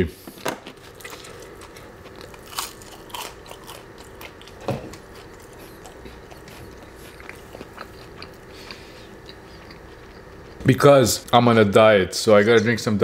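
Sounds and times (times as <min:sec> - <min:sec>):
chewing crunchy fries: 0:00.6 - 0:10.6.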